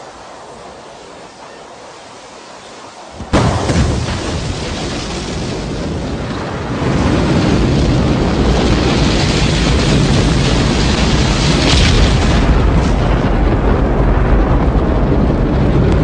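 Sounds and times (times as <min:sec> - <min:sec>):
rocket engine rumble: 0:00.0 - 0:16.0
rocket ignition blast: 0:03.1 - 0:15.7.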